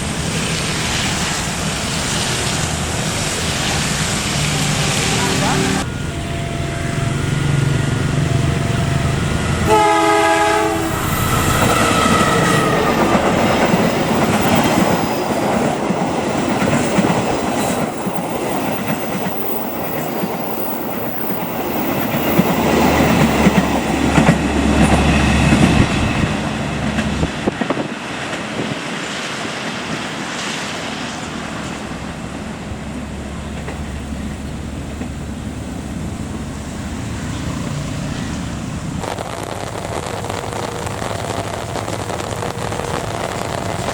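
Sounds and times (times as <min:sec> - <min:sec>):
heavy rain hissing: 0:00.0 - 0:05.9, 0:38.9 - 0:43.9
train horn blast: 0:04.5 - 0:13.9
train carriages clattering on rails: 0:11.1 - 0:35.3.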